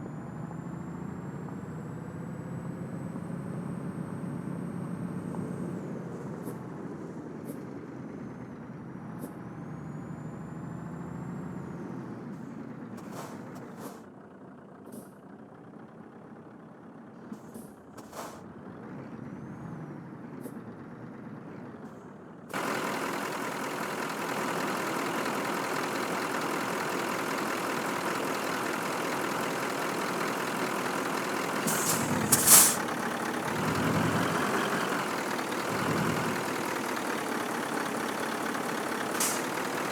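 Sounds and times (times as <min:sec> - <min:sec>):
truck diesel engine running: 0:00.0 - 0:39.9
loud hiss of air: 0:31.6 - 0:32.9, 0:39.2 - 0:39.5.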